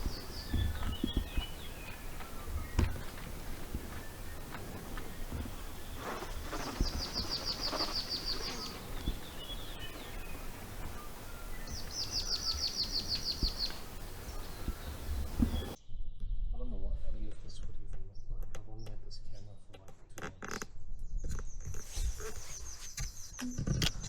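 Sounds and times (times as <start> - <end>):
bird trilling: 0.0 - 15.8
outdoor background noise: 0.0 - 24.0.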